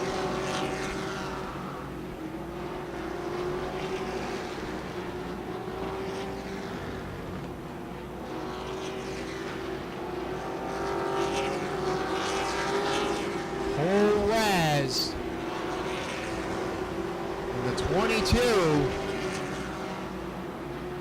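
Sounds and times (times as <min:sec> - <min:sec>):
race truck engines droning: 0:00.0 - 0:21.0.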